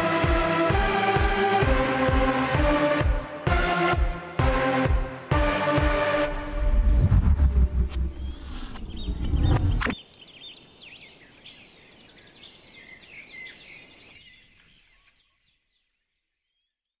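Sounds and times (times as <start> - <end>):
music: 0.0 - 8.4
songbirds chirping and whistling: 8.2 - 16.8.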